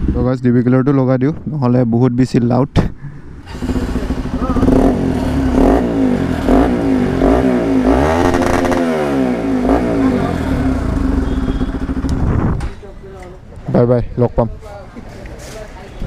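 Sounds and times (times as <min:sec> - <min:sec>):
motorcycle engine idling and revving: 0:03.2 - 0:12.8.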